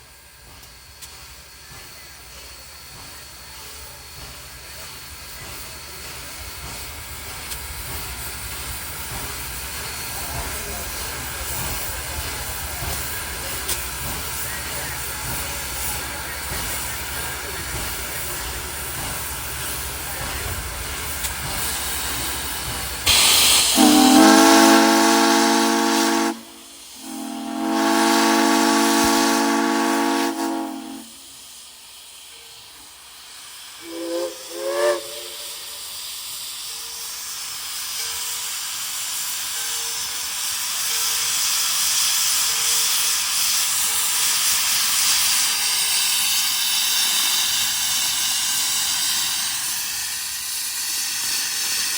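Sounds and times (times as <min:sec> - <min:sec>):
steam hissing: 0:00.0 - 0:51.9
steam locomotive whistle: 0:23.1 - 0:31.4, 0:33.8 - 0:36.0.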